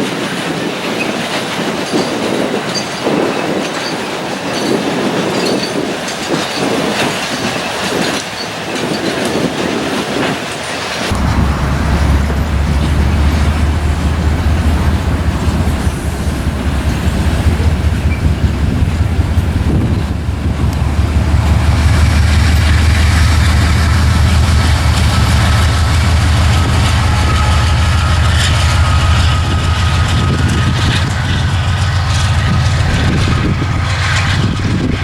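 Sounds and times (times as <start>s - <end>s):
freight train rumbling: 0.0s - 35.0s
faint high squeal: 11.1s - 34.8s.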